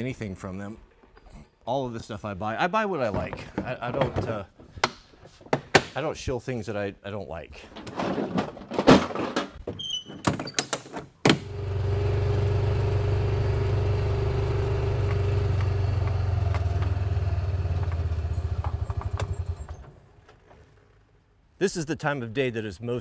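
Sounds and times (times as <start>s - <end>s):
quad engine running: 11.4s - 19.9s
sharp knocks and clatters: 17.7s - 20.7s.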